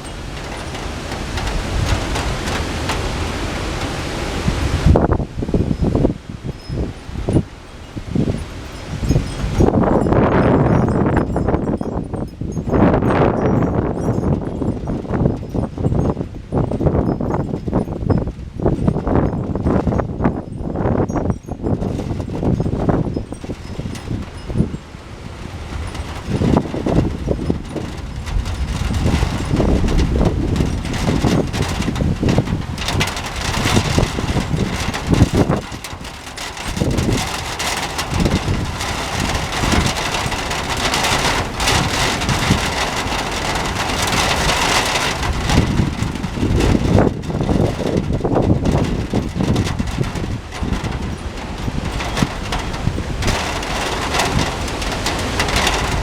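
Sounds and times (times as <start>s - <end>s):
wind buffeting microphone: 0.0s - 56.0s
heavy rain hissing: 36.5s - 46.8s.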